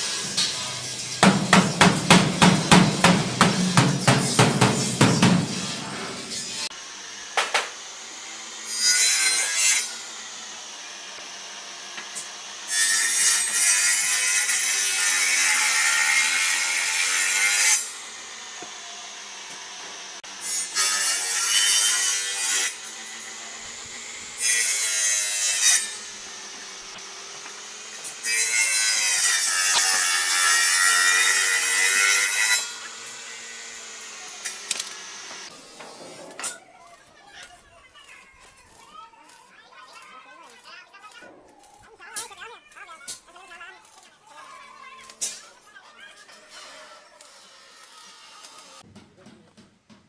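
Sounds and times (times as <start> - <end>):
power tool working: 9.4 - 17.0, 17.7 - 37.0.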